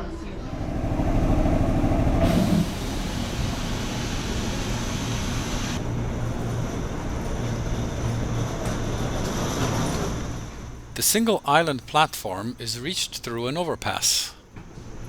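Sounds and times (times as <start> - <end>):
electric train rumbling: 0.4 - 10.9
train hiss: 2.2 - 5.8.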